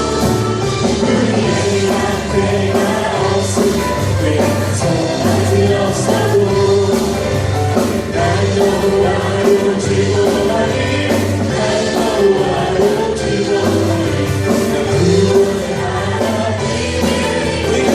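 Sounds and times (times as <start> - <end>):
band playing steady beat: 0.0 - 17.9
group singing worship song: 0.0 - 17.9.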